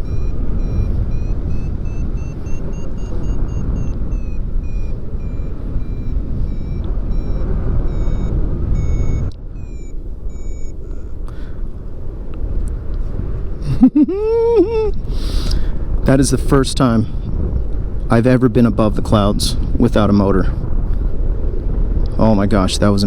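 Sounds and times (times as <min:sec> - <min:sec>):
variometer beeping: 0:00.0 - 0:12.1
wind rush over microphone: 0:00.0 - 0:23.0.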